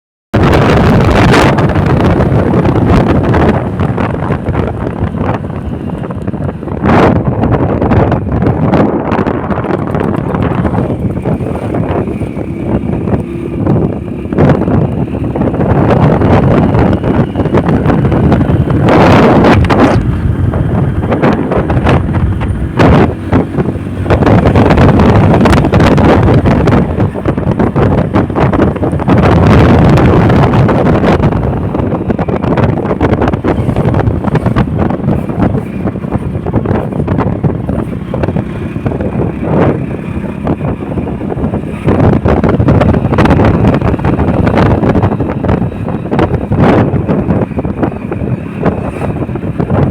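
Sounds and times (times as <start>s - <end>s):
wind buffeting microphone: 0.3s - 49.9s
motorcycle engine: 0.4s - 49.9s
road noise: 0.4s - 49.9s.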